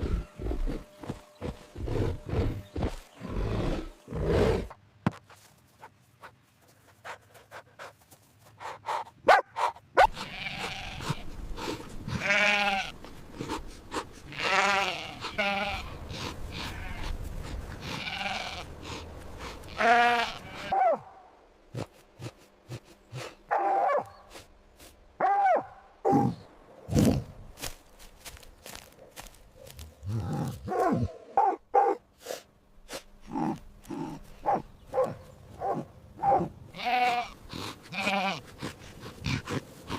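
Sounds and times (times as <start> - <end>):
animal bleating: 10.1 - 13.0, 14.3 - 17.2, 17.8 - 18.7, 19.7 - 20.8, 36.7 - 39.4.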